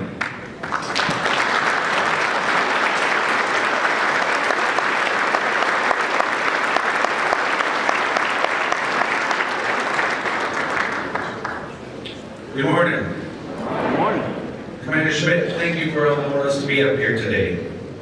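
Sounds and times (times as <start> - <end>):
audience applauding: 0.2 - 11.7.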